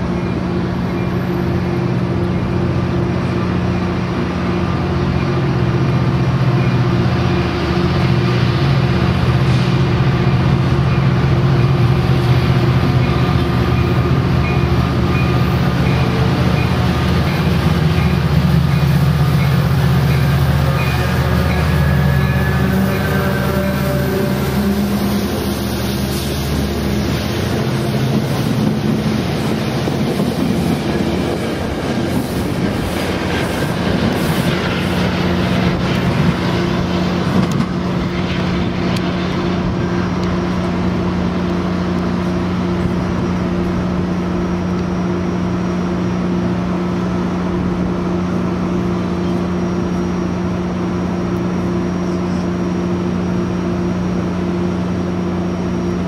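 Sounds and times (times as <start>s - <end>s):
locomotive engine humming: 0.0s - 56.0s
train wheels clattering on rails: 3.2s - 43.6s.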